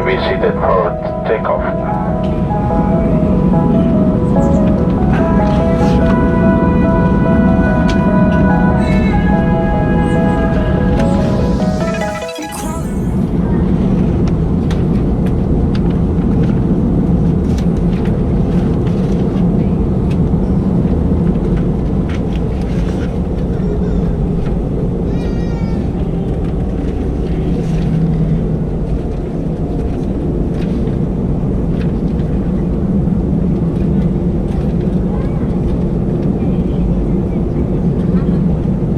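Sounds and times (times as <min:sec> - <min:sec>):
airplane cabin noise: 0:00.0 - 0:11.2
high warbling squeak: 0:02.6 - 0:13.5.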